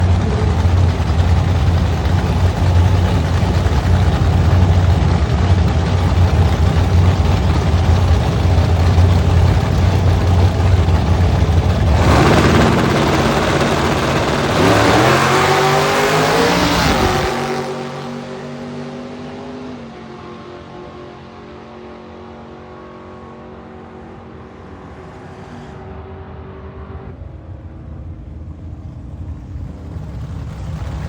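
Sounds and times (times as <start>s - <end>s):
drag car engines idling: 0.0s - 18.6s, 27.2s - 31.0s
car engine revving: 0.0s - 20.2s.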